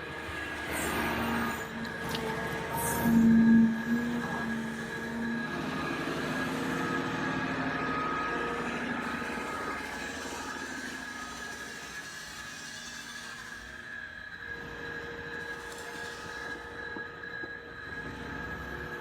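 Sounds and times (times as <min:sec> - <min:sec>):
toy electric motors whirring: 0:09.0 - 0:13.9, 0:15.4 - 0:16.8.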